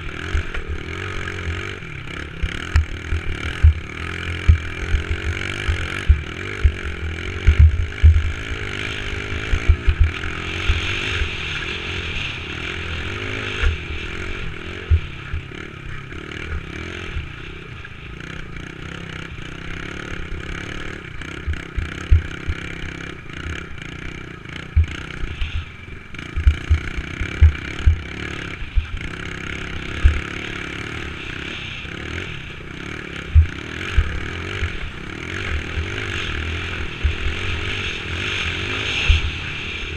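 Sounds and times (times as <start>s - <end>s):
dirt bike engine revving: 0.0s - 39.9s
low thumps on microphone: 26.4s - 28.0s.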